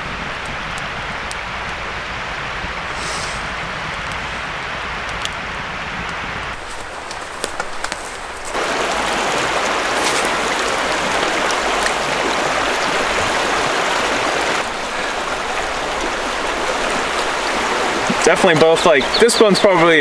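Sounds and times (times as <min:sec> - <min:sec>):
river water rushing over rocks: 0:06.6 - 0:20.0.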